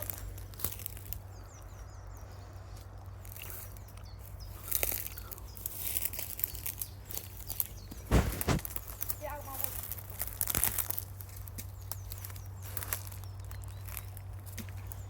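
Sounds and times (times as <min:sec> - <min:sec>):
small bird chirping: 0:00.0 - 0:10.1
rustling and scuffing: 0:07.4 - 0:09.8.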